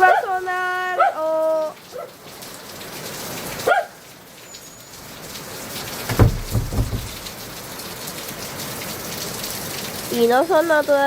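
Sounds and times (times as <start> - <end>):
heavy rain falling: 0.5 - 11.0
low thumps: 6.1 - 7.5.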